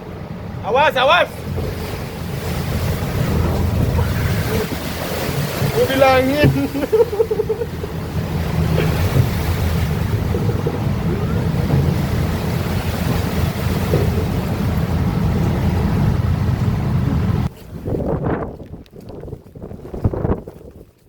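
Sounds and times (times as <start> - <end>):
sea waves rushing against ship: 0.0 - 20.8
wind buffeting microphone: 1.2 - 21.0
steady low drone: 1.3 - 17.5.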